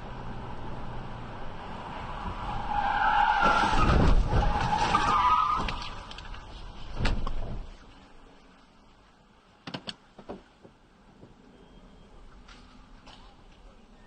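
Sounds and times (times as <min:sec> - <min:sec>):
car tyres squealing: 0:01.6 - 0:06.2.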